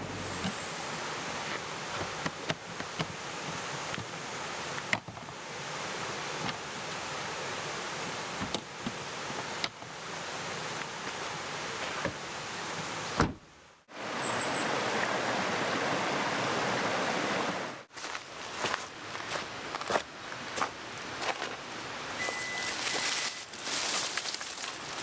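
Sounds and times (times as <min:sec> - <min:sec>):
mountain stream rushing: 0:03.1 - 0:13.2, 0:13.9 - 0:19.8.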